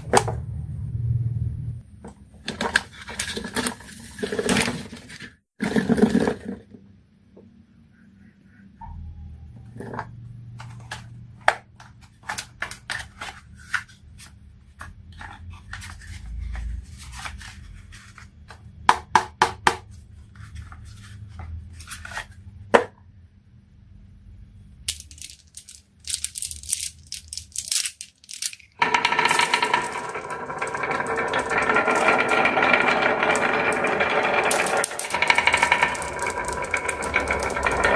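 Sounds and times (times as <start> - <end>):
marbles clacking on marble run: 24.9 - 37.9.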